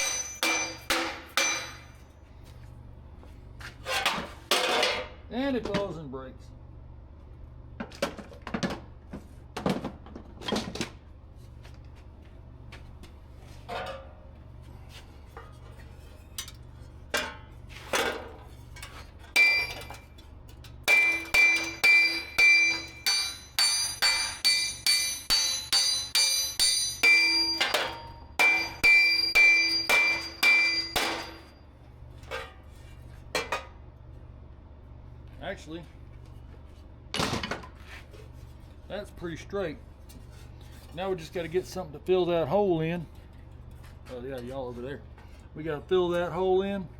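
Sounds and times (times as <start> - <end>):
hammer striking metal: 0.0 - 2.0, 19.3 - 20.1, 20.8 - 31.6.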